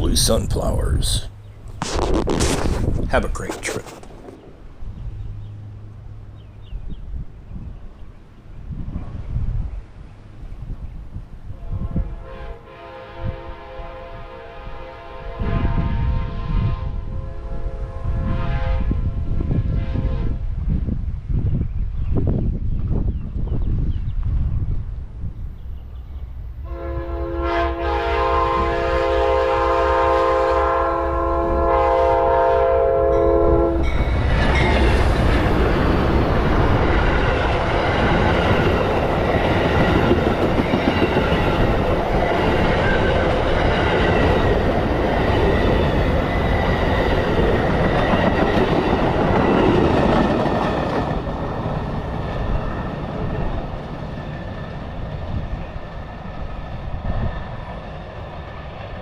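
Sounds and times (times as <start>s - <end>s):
train rumbling and clattering: 0.0s - 59.0s
train horn blast: 11.5s - 20.5s, 26.6s - 34.0s.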